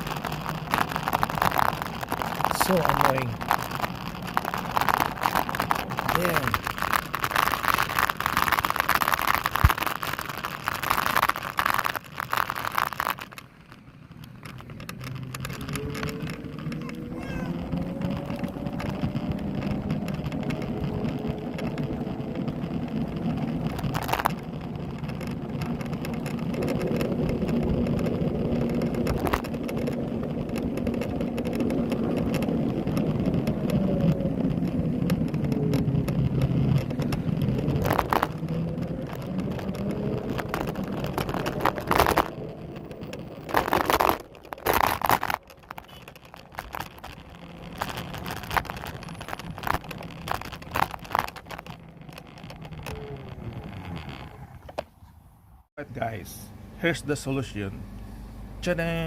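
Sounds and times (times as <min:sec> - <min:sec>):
electric scooter squeaking and creaking: 0:13.3 - 0:55.2.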